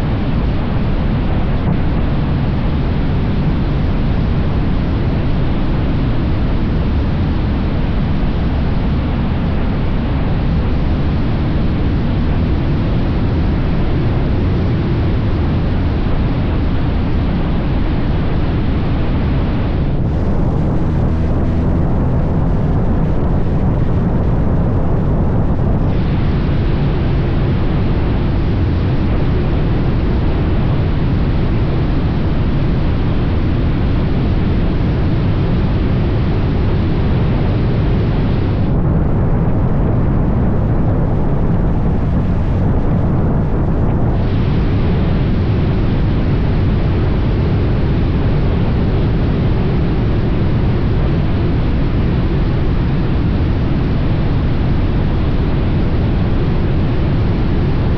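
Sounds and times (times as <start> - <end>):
wind rush over microphone: 0.0 - 57.9
motorcycle engine rumbling: 19.9 - 25.9, 39.4 - 44.2.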